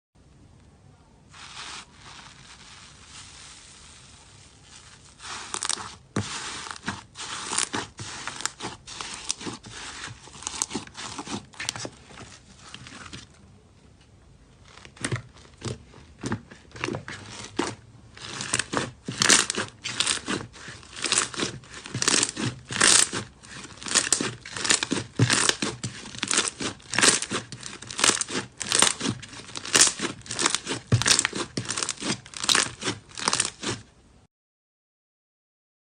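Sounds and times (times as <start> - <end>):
slime crackling and popping: 4.7 - 11.9, 14.7 - 33.9.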